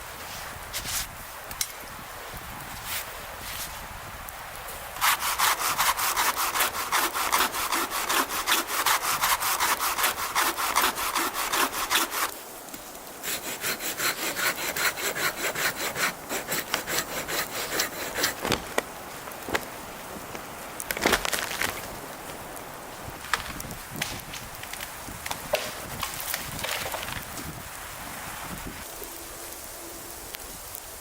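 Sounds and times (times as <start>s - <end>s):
hand saw cutting wood: 5.0s - 12.3s, 13.2s - 18.7s.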